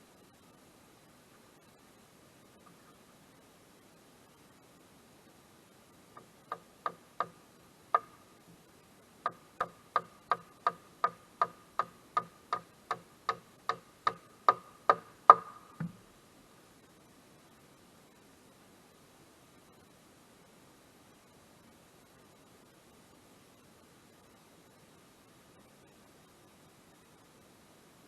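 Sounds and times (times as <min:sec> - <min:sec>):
sharp ringing ticks: 0:09.3 - 0:15.8.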